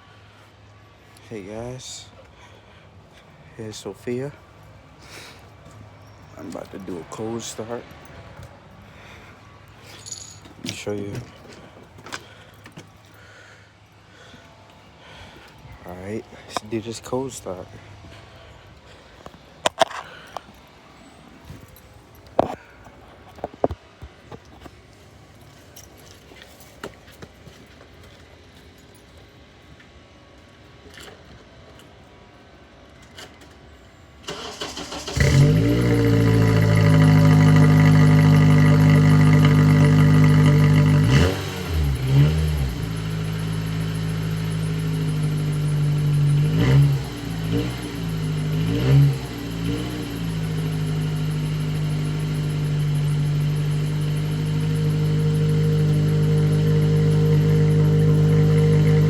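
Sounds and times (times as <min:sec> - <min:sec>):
car engine running and revving: 0:35.2 - 0:59.0.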